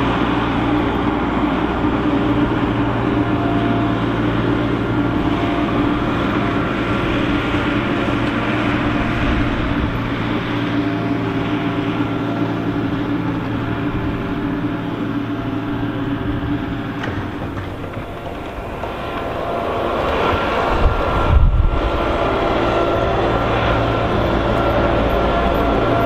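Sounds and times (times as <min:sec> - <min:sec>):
diesel engine droning: 0:00.0 - 0:26.0.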